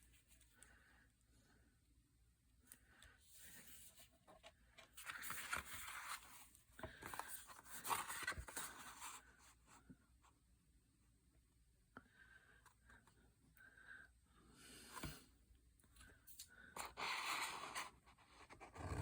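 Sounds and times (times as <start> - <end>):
paper rustling and scraping: 3.4 - 9.2.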